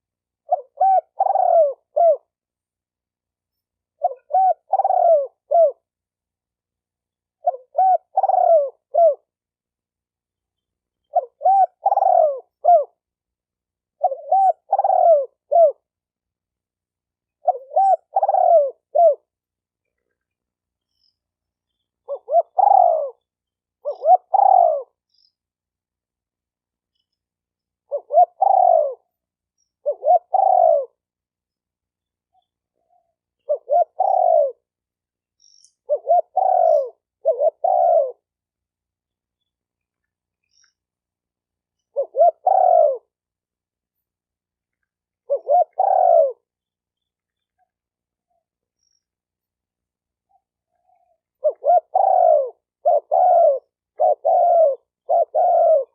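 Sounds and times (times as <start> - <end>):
dove cooing: 0.0 - 2.4, 4.0 - 5.9, 7.4 - 9.4, 11.0 - 13.1, 13.9 - 15.9, 17.4 - 19.3, 21.7 - 25.3, 27.8 - 29.1, 29.8 - 31.1, 32.4 - 34.7, 35.8 - 38.3, 41.9 - 43.2, 45.2 - 46.5, 50.3 - 55.9.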